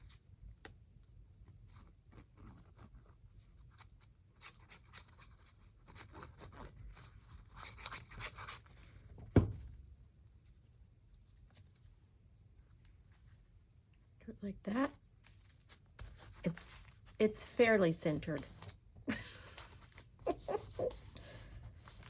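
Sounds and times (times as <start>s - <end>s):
paper rustling and rubbing: 1.5s - 9.1s, 15.2s - 17.2s, 19.4s - 22.0s.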